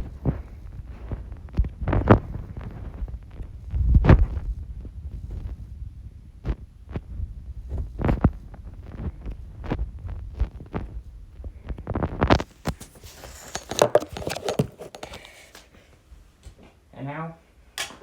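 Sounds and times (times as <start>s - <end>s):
low rumble: 0.0s - 12.3s.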